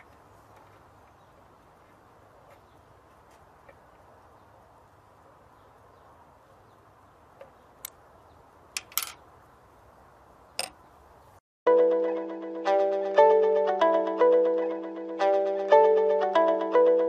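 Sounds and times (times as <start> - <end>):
loud music: 11.7 - 17.0.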